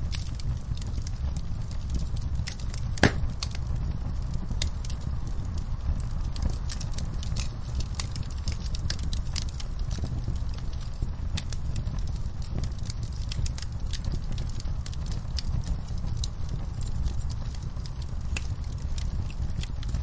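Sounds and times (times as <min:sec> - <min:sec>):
fire pops: 0:00.0 - 0:20.0
wood fire crackling: 0:00.0 - 0:20.0
low rumble: 0:01.9 - 0:04.3.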